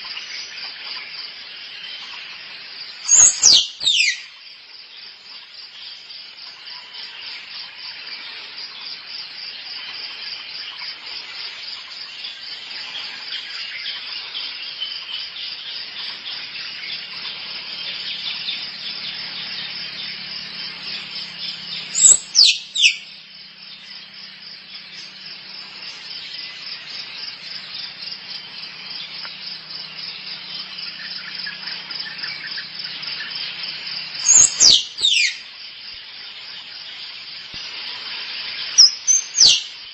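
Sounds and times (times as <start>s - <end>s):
squirrel pulsing chatter: 21.9s - 23.0s, 34.2s - 35.4s.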